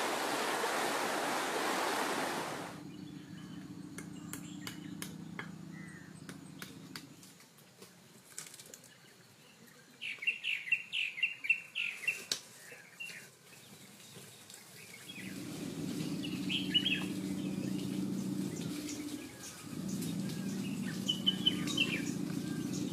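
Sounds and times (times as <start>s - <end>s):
steady low hum: 2.1s - 7.4s, 15.2s - 22.9s
bird singing high chirps: 9.5s - 22.9s.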